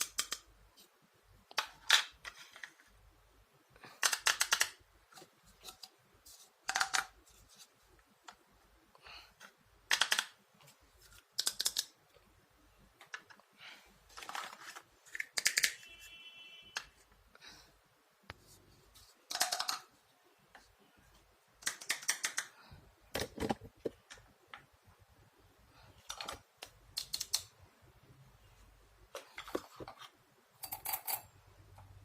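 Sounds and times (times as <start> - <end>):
plastic toy pieces clicking: 0.0 - 0.5, 3.9 - 4.8, 6.6 - 7.2, 9.9 - 10.4, 11.3 - 12.0, 15.1 - 15.8, 19.3 - 19.9, 21.6 - 22.5, 26.1 - 27.5.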